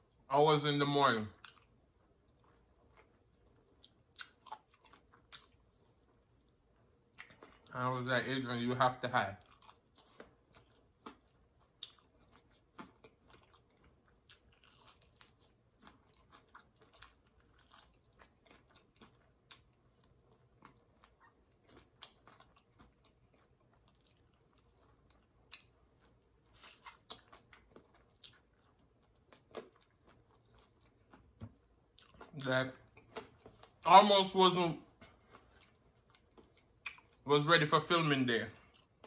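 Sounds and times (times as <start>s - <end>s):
crunching crispy fried chicken: 9.4s - 31.2s.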